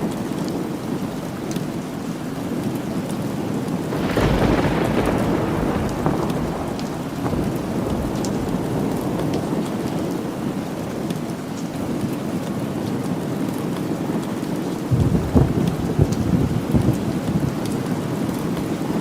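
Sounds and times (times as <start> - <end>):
steady rain: 0.0 - 19.0
thunder rolling: 3.9 - 10.4, 14.9 - 19.0.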